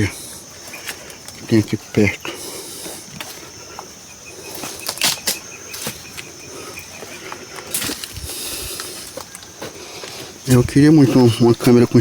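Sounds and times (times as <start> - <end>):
steady high hiss: 0.0 - 12.0
footsteps on dry brush: 4.5 - 12.0.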